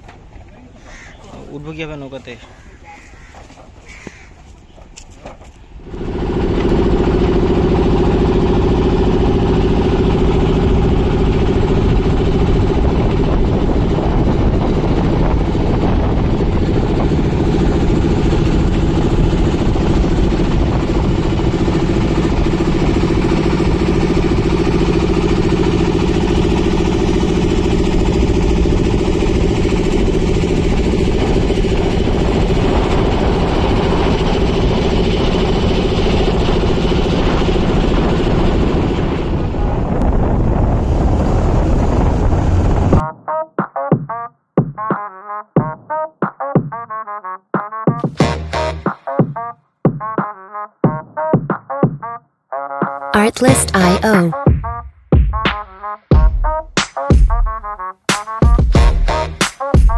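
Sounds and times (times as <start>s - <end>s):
boat engine running: 5.7s - 43.0s.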